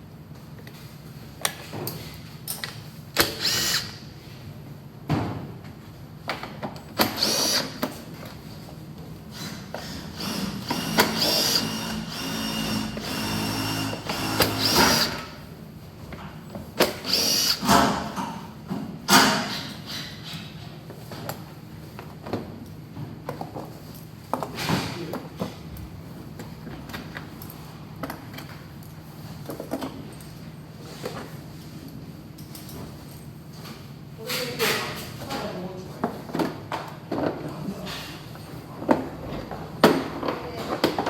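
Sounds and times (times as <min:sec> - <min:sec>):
power driver motor whine: 0:10.2 - 0:15.3.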